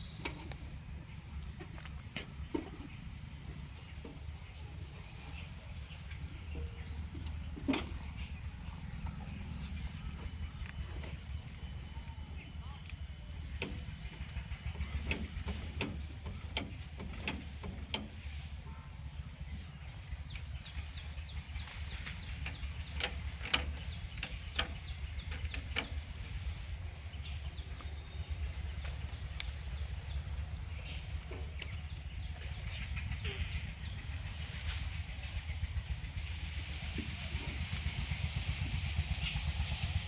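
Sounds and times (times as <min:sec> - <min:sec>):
tractor engine rumbling: 0:00.0 - 0:40.0
sharp knocks and clicks: 0:06.1 - 0:08.2, 0:13.4 - 0:18.3, 0:22.4 - 0:26.0.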